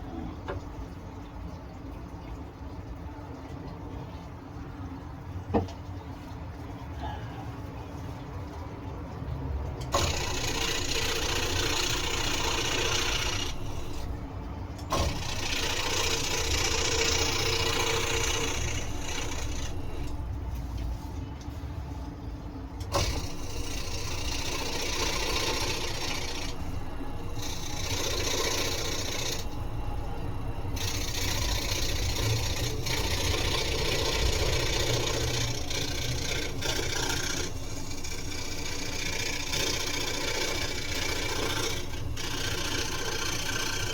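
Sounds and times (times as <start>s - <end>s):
scroll saw humming: 9.8s - 20.4s, 22.8s - 43.9s
saw blade cutting wood: 9.9s - 13.8s, 14.9s - 20.1s, 22.9s - 26.6s, 27.4s - 29.6s, 30.8s - 43.9s.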